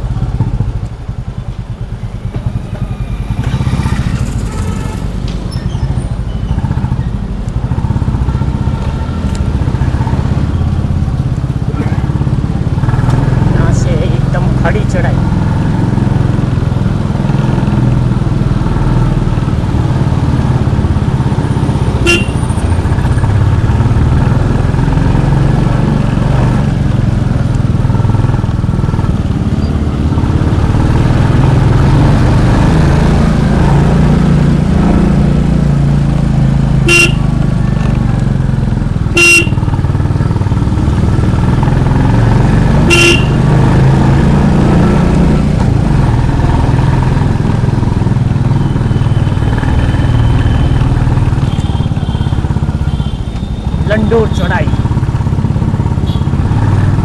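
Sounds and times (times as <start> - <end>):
motorcycle engine under load: 0.0 - 57.0
short horn beeps: 21.5 - 22.9, 36.8 - 37.4, 39.2 - 39.7, 42.9 - 43.6.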